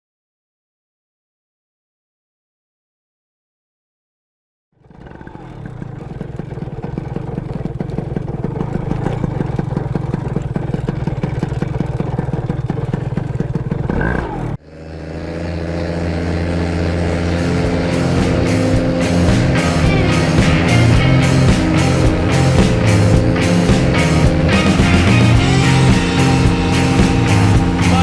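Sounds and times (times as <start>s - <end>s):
paramotor engine running: 4.8s - 28.0s
rock music: 16.5s - 28.0s.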